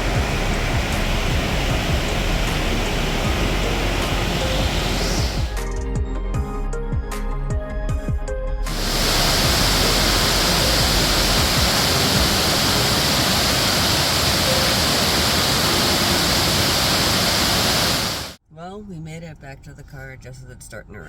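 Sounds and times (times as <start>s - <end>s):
waterfall rushing: 0.0s - 5.6s, 8.7s - 18.4s
background music with a beat: 0.0s - 12.4s.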